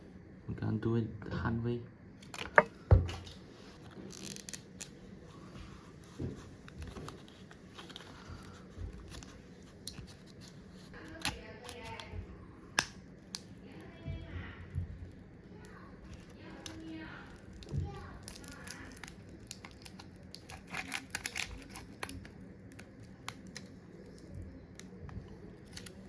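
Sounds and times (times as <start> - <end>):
quiet scraping and handling: 2.2 - 12.2.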